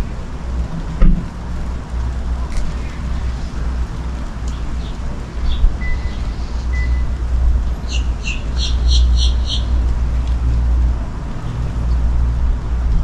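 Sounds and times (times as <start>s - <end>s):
rainstorm: 0.0s - 13.0s
bird chirps: 5.5s - 7.0s, 7.9s - 9.7s.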